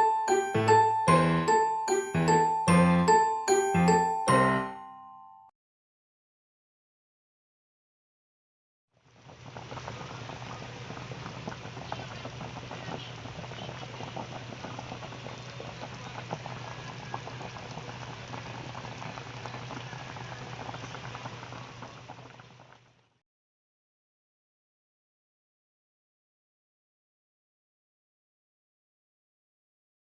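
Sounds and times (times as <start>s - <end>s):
soup boiling and bubbling: 9.0s - 23.2s.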